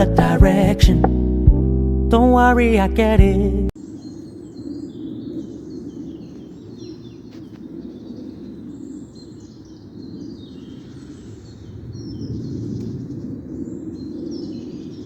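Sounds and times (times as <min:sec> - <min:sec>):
birds chirping and singing: 0:03.8 - 0:15.0.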